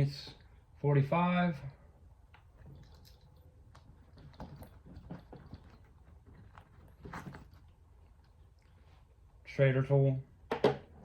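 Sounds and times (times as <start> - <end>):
rustling of tool bag: 2.5 - 9.1.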